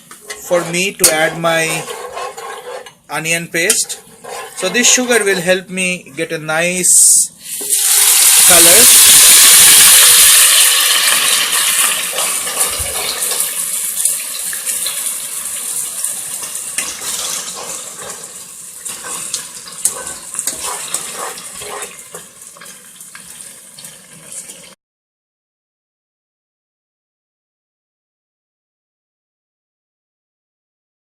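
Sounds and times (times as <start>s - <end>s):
onion paste sizzling in oil: 0.0s - 5.9s, 6.9s - 24.8s.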